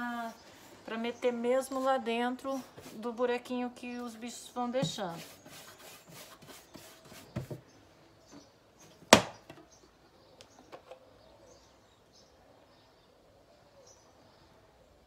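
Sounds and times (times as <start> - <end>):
paintbrush tapping and scraping wood: 4.8 - 7.6
sharp loud knock: 9.1 - 9.4.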